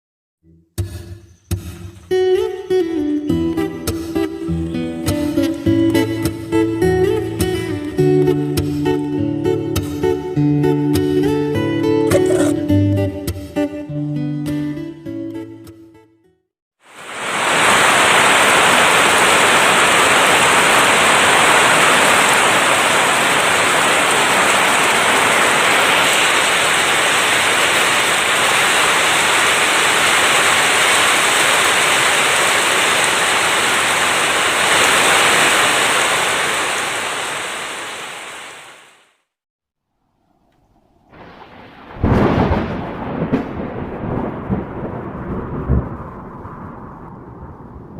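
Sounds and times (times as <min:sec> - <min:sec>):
heavy rain downpour: 0:16.8 - 0:39.1, 0:41.2 - 0:47.9.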